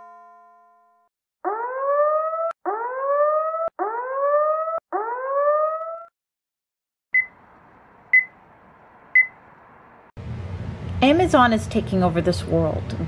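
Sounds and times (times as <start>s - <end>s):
electronic whooping alarm: 1.4s - 6.1s.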